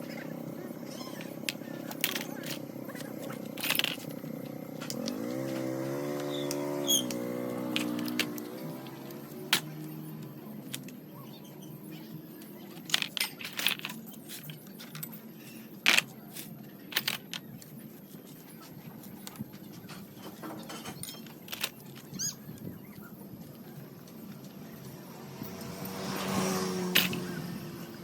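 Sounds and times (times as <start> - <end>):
metal tools clinking and knocking: 0.9 - 7.1, 7.7 - 11.0, 12.6 - 17.7, 19.0 - 22.2, 26.9 - 27.3.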